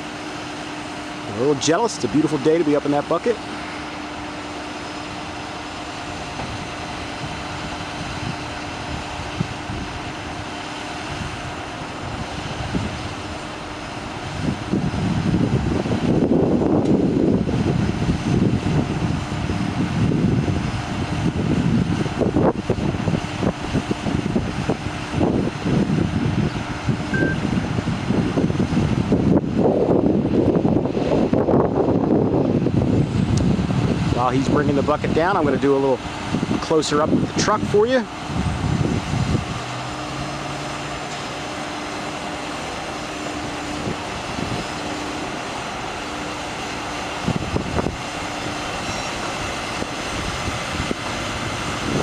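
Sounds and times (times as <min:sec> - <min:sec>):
diesel truck engine running: 0:00.0 - 0:52.0.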